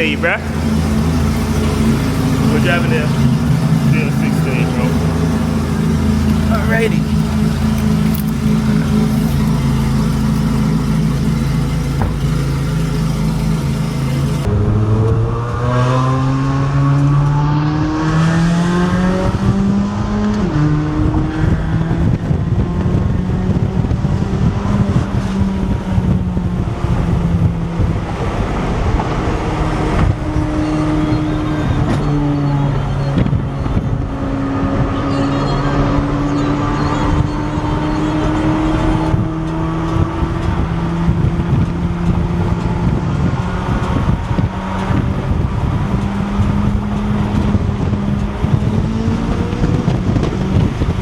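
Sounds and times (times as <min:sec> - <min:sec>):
sports car engine accelerating: 0:00.0 - 0:51.0.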